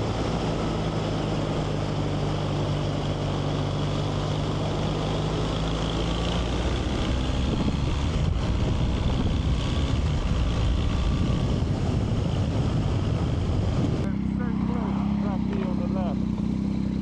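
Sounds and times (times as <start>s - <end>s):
motorcycle engine running: 0.0s - 17.0s
wind buffeting microphone: 6.9s - 14.1s.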